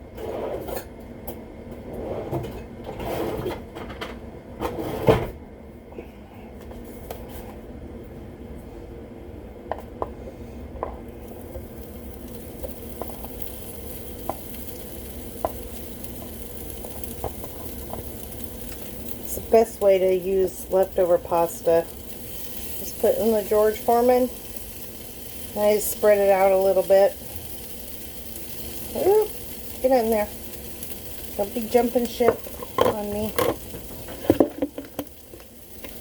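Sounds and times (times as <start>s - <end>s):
food sizzling on a grill: 11.0s - 36.0s.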